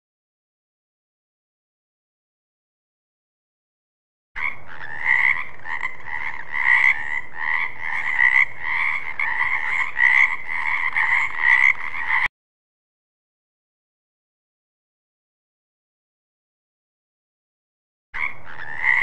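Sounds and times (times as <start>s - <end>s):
frogs croaking: 4.4s - 12.3s, 18.2s - 19.0s.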